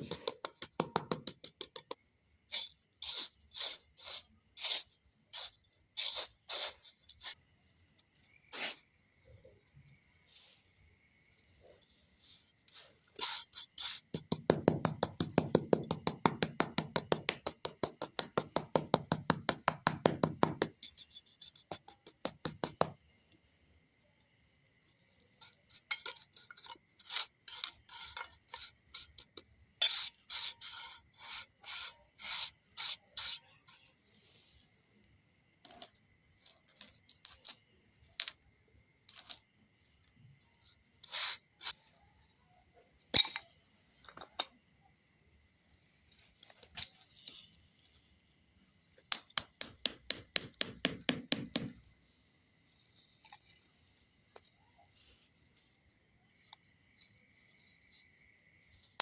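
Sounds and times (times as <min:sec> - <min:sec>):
rasping hand tool strokes: 0:12.7 - 0:22.8.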